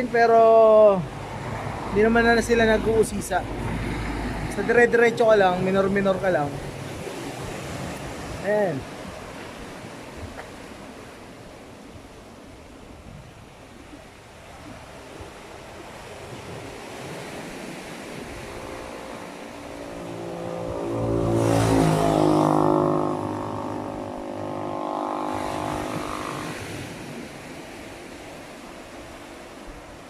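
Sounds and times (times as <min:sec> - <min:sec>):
surf washing: 0:00.0 - 0:30.0
vehicle driving past: 0:01.1 - 0:08.0, 0:16.7 - 0:27.6.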